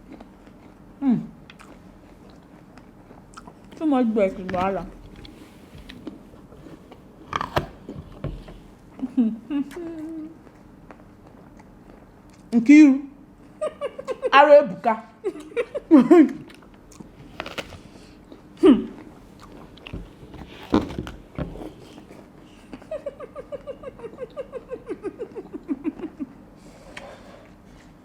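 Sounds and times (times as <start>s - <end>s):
apples being bitten and chewed: 0.0s - 8.6s, 16.3s - 22.8s.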